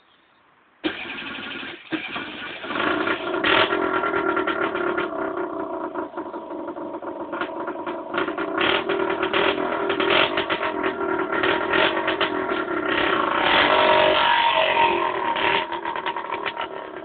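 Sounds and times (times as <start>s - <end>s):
small two-stroke engine running: 0.8s - 17.0s.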